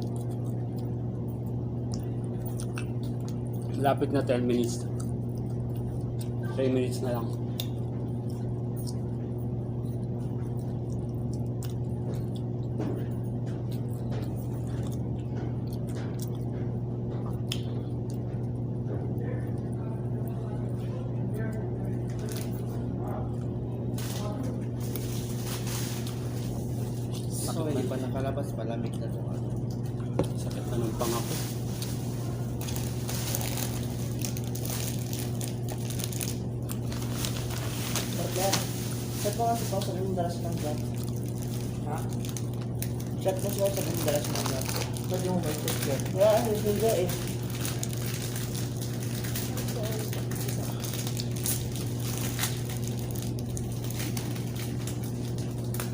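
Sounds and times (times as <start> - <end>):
crunching and mouth noises: 0.0 - 20.8, 21.4 - 55.9
chewing hard flatbread: 0.0 - 55.9
low mechanical hum: 0.0 - 55.9.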